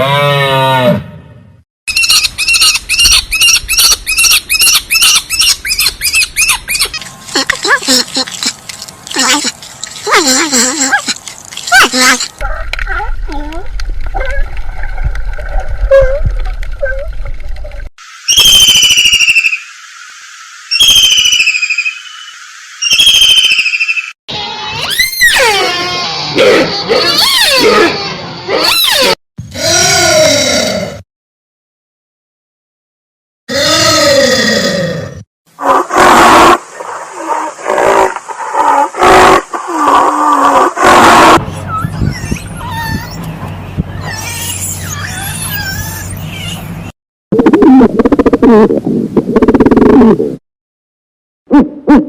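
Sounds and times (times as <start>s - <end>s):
high whistled animal calls: 18.2s - 19.7s, 20.7s - 24.2s, 41.3s - 43.2s, 43.9s - 46.7s
bird squawking: 41.4s - 43.3s, 43.9s - 46.9s.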